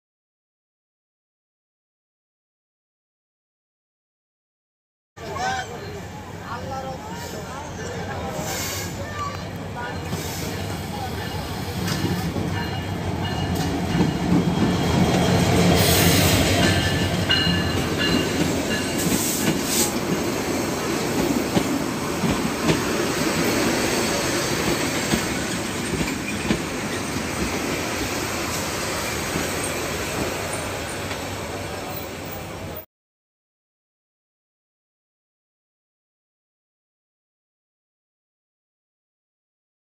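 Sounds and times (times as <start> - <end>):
diesel locomotive passing slowly: 5.2 - 32.8
train coaches rumbling: 5.2 - 32.8
train knocks: 11.7 - 31.3.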